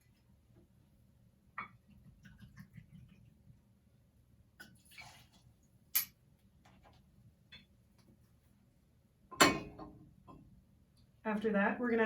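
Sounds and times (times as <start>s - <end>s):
liquid pouring: 4.6s - 5.7s.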